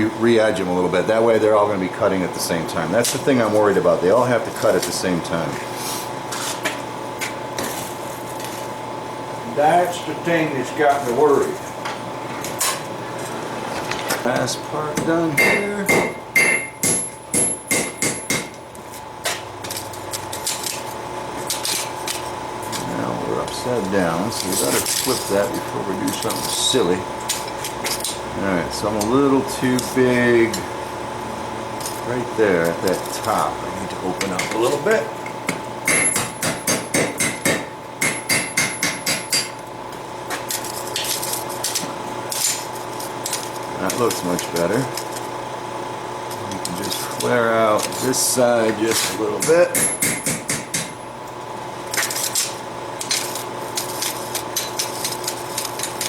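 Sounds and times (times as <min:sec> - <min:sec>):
hammer striking steel on anvil: 0:15.0 - 0:18.6, 0:35.9 - 0:39.6, 0:49.4 - 0:51.0.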